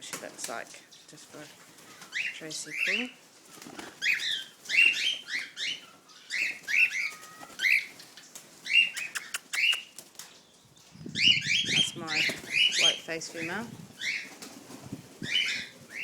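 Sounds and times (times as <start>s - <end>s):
cockatiels chirping: 3.8s - 9.9s, 11.1s - 14.3s
sharp clicks: 9.0s - 10.0s.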